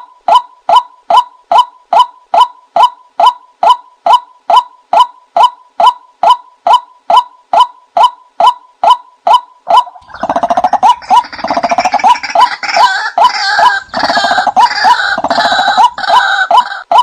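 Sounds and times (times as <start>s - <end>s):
rasping rattling bird chatter: 10.0s - 16.8s.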